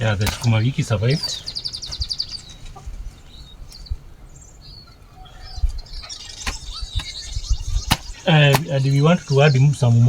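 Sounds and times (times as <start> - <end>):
small birds chirping: 0.0 - 10.0
low thuds: 5.4 - 9.6.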